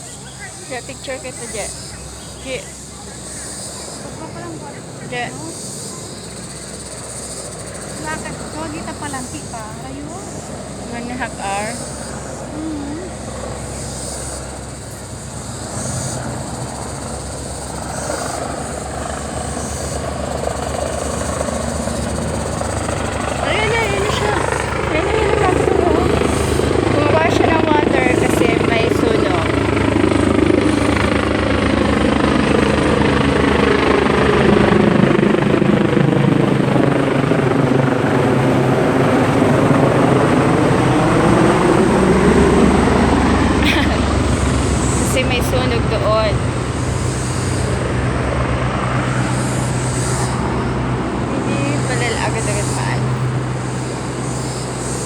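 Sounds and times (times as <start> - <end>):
helicopter rotor blades beating: 0.0 - 55.0.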